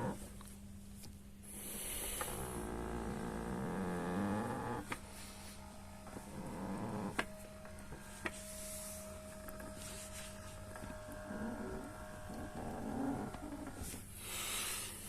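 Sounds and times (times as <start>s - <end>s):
massager motor humming: 0.0s - 15.0s
massage rollers squeaking: 2.2s - 14.1s.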